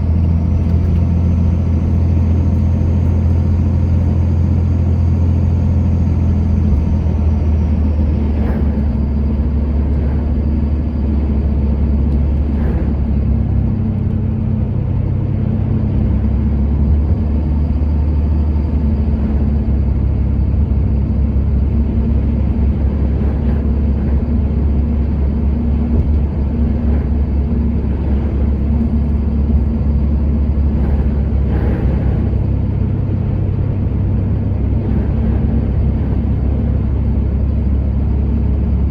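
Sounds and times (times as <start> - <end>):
vehicle engine and road rumble: 0.0 - 38.9.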